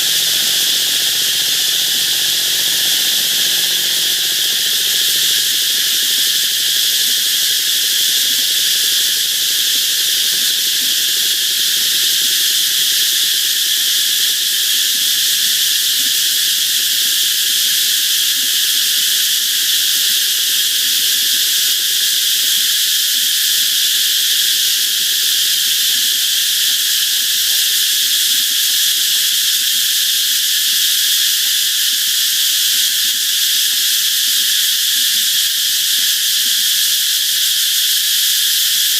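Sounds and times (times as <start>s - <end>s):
cicadas droning: 0.0s - 38.9s.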